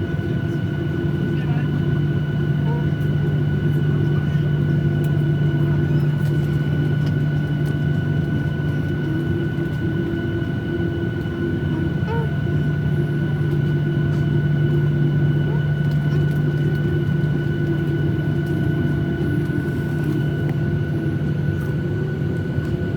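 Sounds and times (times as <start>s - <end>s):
jet cabin engine drone: 0.0s - 22.9s.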